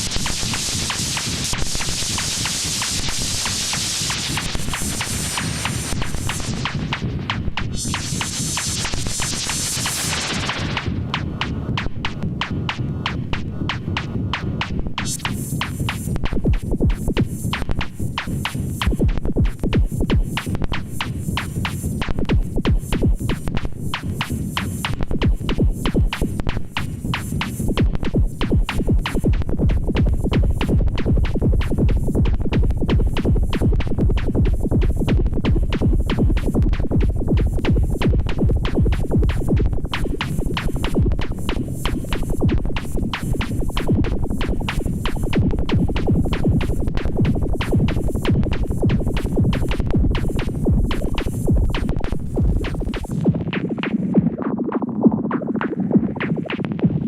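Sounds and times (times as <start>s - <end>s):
high ticking drum hits: 0.0s - 54.5s
heavy low drum: 4.2s - 54.4s
mid-range synth sound: 29.0s - 56.0s.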